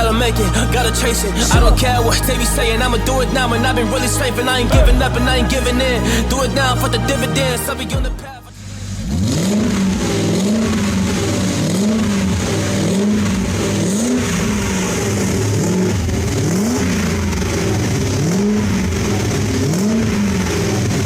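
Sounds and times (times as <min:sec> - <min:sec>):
car engine revving: 0:08.7 - 0:21.0.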